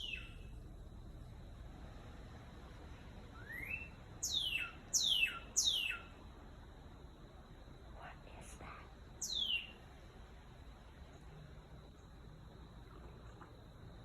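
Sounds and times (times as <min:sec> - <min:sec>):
songbird whistling: 0:00.0 - 0:00.5, 0:03.3 - 0:06.2, 0:09.2 - 0:09.8.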